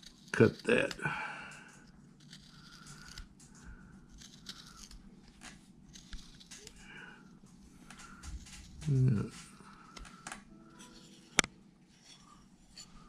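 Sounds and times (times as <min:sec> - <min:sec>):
knife blade scraping wood: 0:02.2 - 0:03.4, 0:04.1 - 0:05.0.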